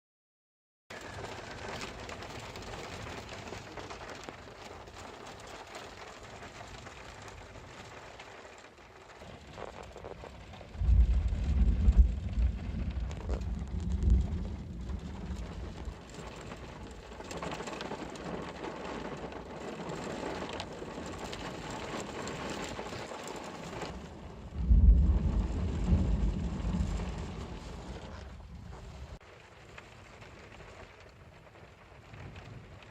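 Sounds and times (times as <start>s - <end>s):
heavy rain falling: 0.9s - 32.9s
thunder claps rumbling: 9.6s - 29.2s.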